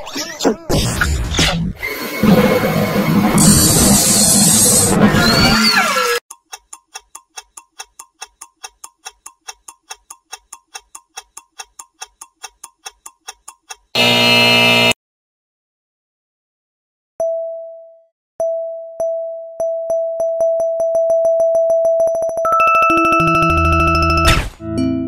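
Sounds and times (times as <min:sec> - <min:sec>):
clock ticking: 0:06.3 - 0:14.0
loud alarm buzz: 0:14.0 - 0:15.0.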